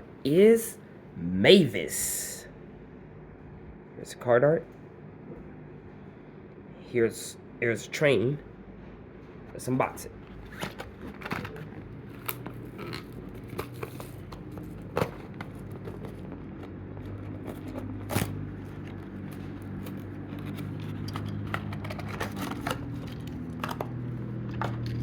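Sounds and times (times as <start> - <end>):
low steady hum: 0.0 - 25.0
packaging tearing and crinkling: 10.5 - 16.4, 17.0 - 24.0.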